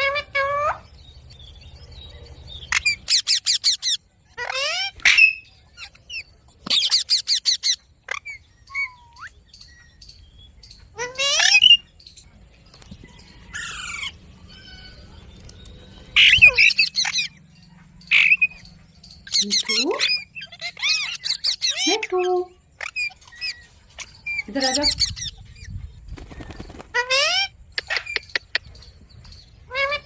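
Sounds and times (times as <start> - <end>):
parakeet squawks: 2.7 - 5.5.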